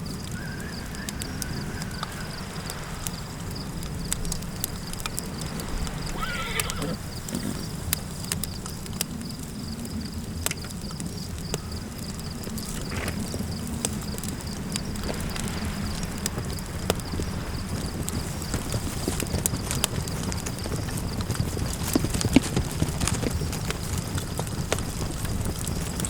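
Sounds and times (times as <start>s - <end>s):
campfire crackling and popping: 0.0s - 26.0s
low wind rumble: 0.0s - 26.0s
brief animal call: 6.1s - 7.0s.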